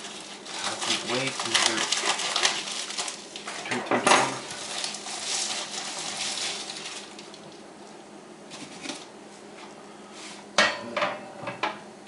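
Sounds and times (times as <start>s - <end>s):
handling rustle: 0.0s - 3.7s.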